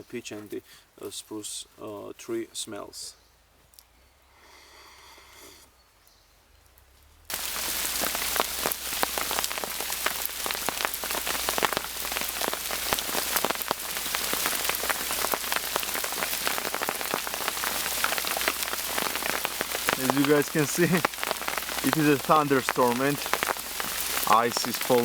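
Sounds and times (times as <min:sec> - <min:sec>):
hail pattering: 0:07.3 - 0:25.0.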